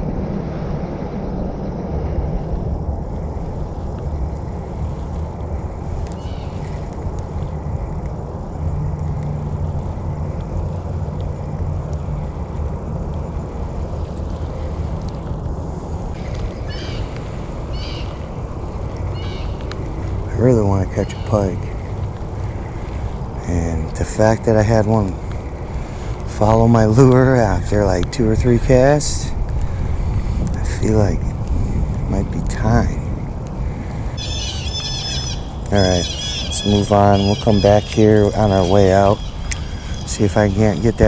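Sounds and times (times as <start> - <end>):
low outdoor rumble: 0.0 - 41.0
bird chirps: 34.2 - 41.0.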